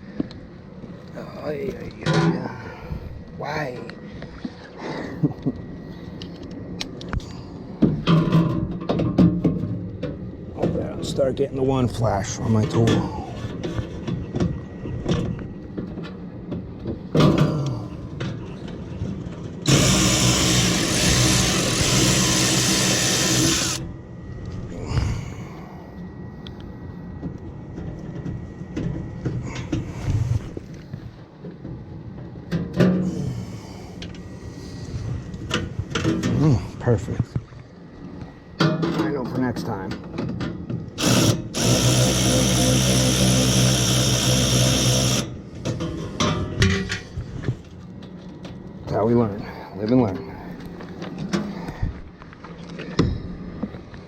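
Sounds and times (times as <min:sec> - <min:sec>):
cordless power driver running: 0:19.7 - 0:23.9, 0:41.0 - 0:45.4.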